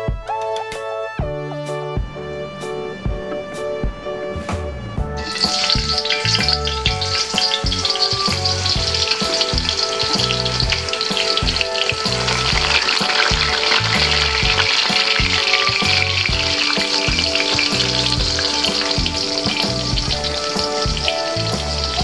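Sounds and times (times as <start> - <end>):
background music: 0.0 - 22.0
food sizzling in hot oil: 5.2 - 22.0.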